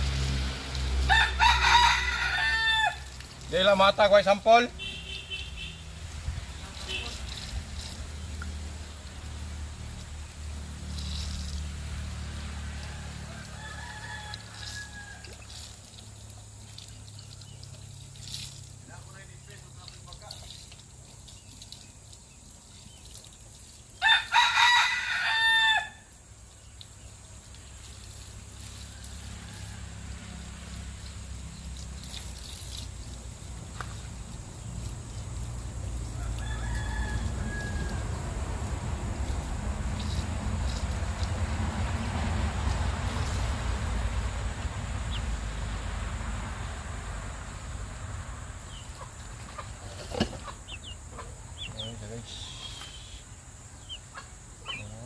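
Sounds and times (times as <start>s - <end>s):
rooster crowing: 1.0s - 3.2s, 12.4s - 15.7s, 24.0s - 26.1s, 28.6s - 30.8s, 36.0s - 38.6s
chickens clucking: 48.7s - 53.2s, 53.8s - 55.0s.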